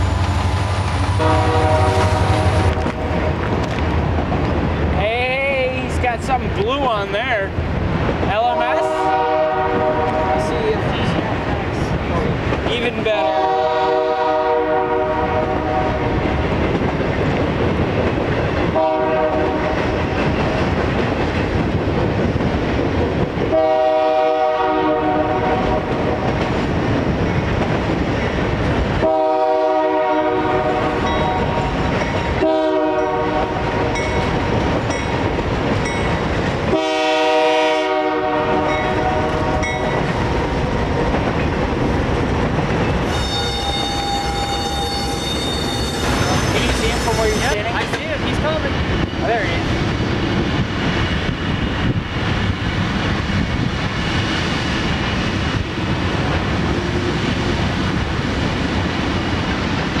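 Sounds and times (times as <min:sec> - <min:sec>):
passing train rumble and clatter: 0:00.0 - 1:00.0
locomotive air horn blasts: 0:01.1 - 0:03.2, 0:08.7 - 0:10.5, 0:13.2 - 0:16.1, 0:18.8 - 0:19.8, 0:23.5 - 0:25.8, 0:29.0 - 0:31.6, 0:32.4 - 0:34.0, 0:36.7 - 0:39.8, 0:43.1 - 0:46.0.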